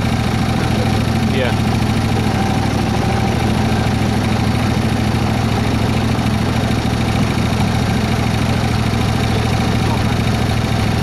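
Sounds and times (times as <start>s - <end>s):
locomotive engine droning: 0.0s - 11.0s.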